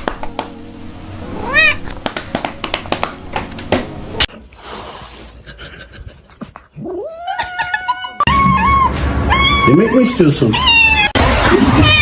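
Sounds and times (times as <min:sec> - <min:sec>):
kitten meowing: 0:01.4 - 0:01.8, 0:07.2 - 0:11.2.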